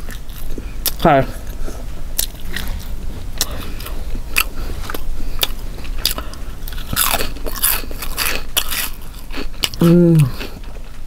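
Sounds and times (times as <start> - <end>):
food crunch: 0.0 - 1.6, 2.2 - 10.8
chewing food with moist clicks: 0.0 - 10.8.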